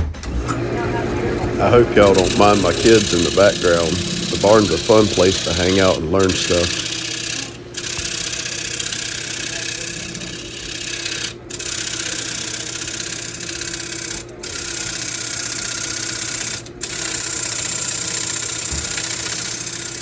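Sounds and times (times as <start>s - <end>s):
lathe motor hum: 0.0s - 20.0s
gouge cutting wood hiss: 0.5s - 11.4s.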